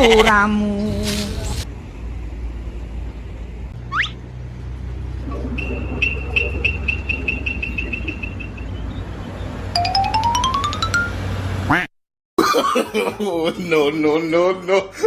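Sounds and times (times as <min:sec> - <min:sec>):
clicks rising in pitch: 0:09.8 - 0:11.6.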